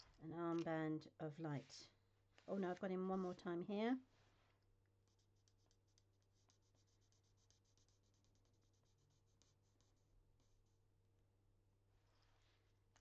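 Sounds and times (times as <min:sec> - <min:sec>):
pen scratching on card: 0:05.0 - 0:10.7.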